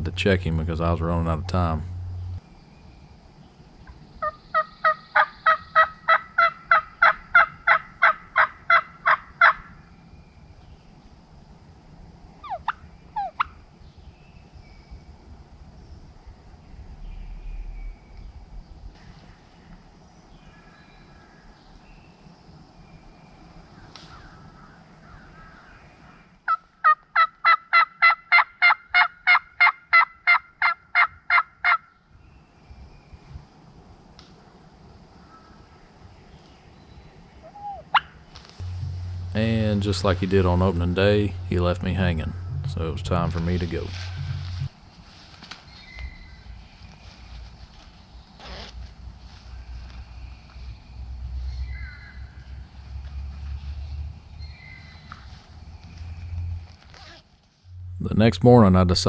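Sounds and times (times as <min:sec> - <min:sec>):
turkey call yelps: 0:26.5 - 0:31.8, 0:37.5 - 0:38.1.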